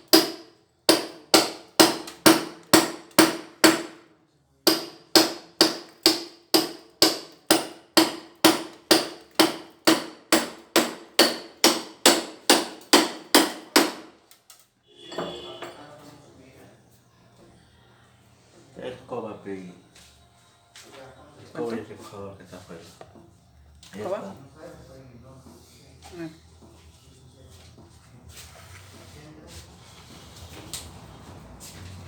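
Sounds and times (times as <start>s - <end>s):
hammer chipping tile and concrete: 0.0s - 4.0s, 4.7s - 14.1s.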